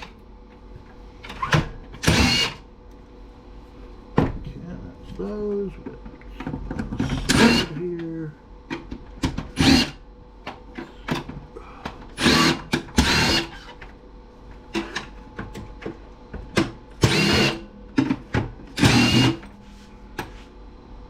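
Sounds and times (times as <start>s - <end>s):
drill-driver spinning: 12.2s - 13.7s, 17.0s - 17.6s, 18.8s - 19.4s.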